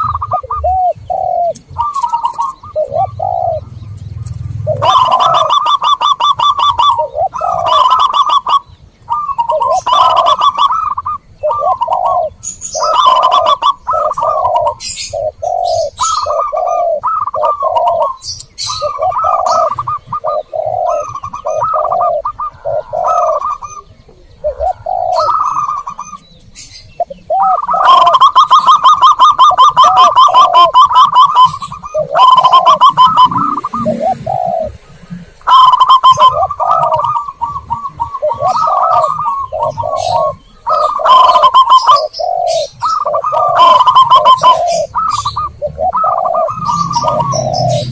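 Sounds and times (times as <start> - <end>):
doves cooing: 0.0 - 47.9
small birds chirping: 0.0 - 47.9.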